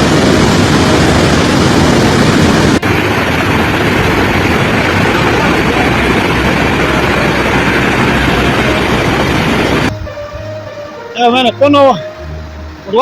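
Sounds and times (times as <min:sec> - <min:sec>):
rushing floodwater roar: 0:00.0 - 0:13.0.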